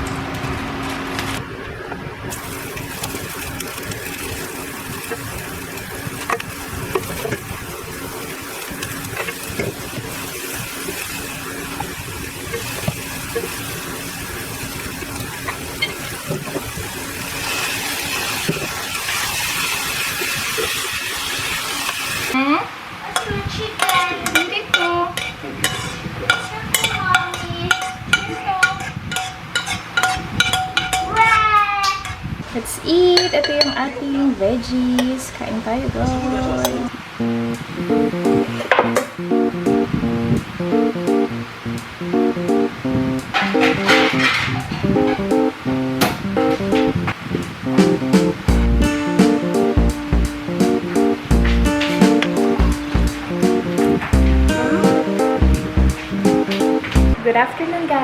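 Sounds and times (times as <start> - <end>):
food sizzling in a frying pan: 2.3 - 31.8.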